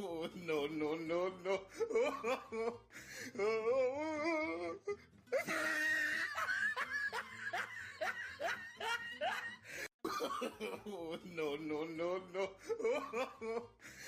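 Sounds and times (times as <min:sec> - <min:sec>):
music: 0:00.0 - 0:14.0.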